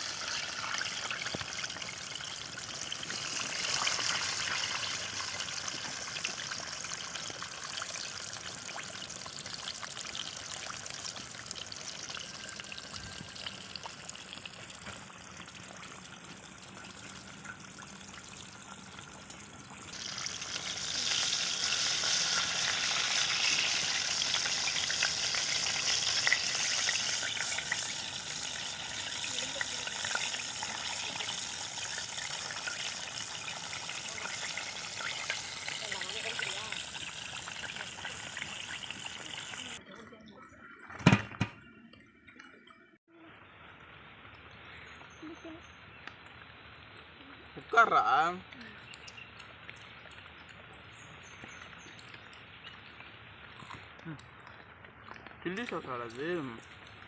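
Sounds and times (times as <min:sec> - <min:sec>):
chicken sizzling in hot oil: 0:00.0 - 0:39.8.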